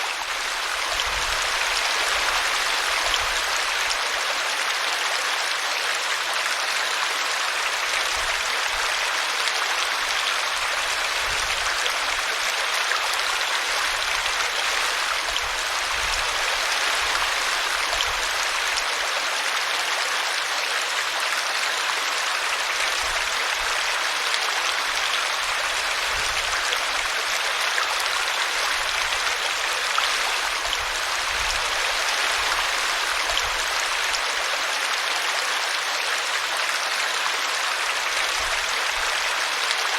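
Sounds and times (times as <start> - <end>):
brook water splashing: 0.0 - 4.8.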